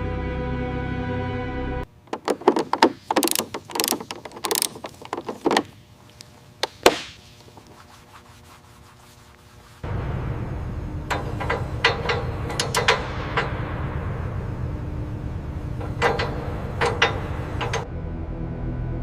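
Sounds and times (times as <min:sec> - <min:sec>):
sharp click: 0:02.1 - 0:05.8
hand rubbing and scraping surface: 0:02.1 - 0:10.0.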